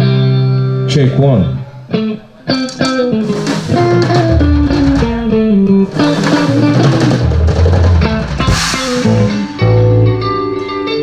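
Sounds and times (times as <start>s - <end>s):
rock band playing: 2.5s - 11.0s
cymbal crash: 8.4s - 10.0s.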